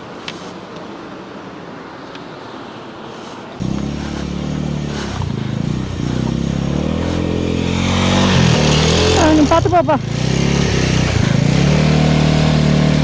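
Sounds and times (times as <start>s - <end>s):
motorcycle engine under throttle: 3.6s - 13.0s.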